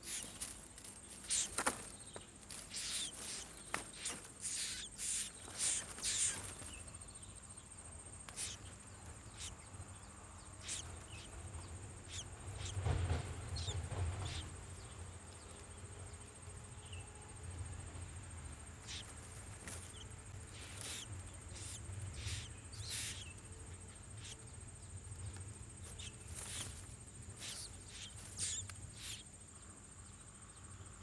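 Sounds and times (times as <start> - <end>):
bird chirping: 0.0 - 31.0.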